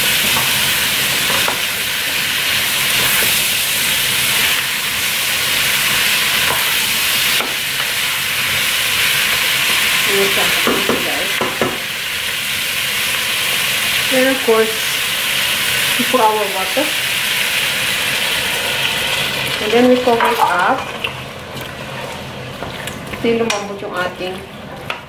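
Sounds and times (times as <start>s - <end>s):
pumpkin sizzling in a pot: 0.0s - 25.0s.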